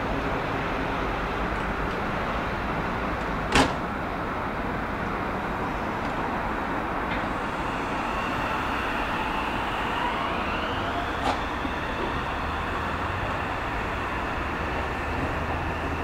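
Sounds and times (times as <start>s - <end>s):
train rumble: 0.0s - 16.0s
train motor whine rising: 5.5s - 16.0s.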